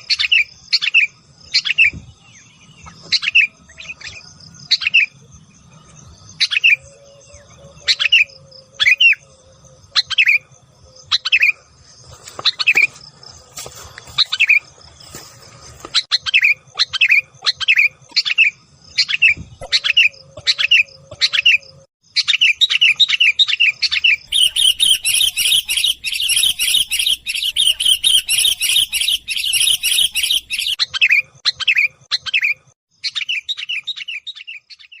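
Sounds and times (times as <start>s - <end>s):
bulbul calling: 16.0s - 35.0s.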